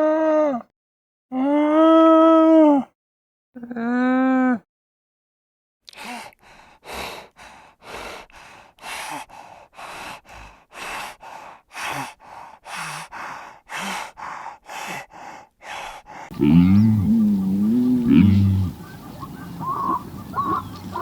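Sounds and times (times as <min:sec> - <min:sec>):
rapid heavy breathing: 0:06.0 - 0:21.0
farm animal call: 0:16.3 - 0:21.0.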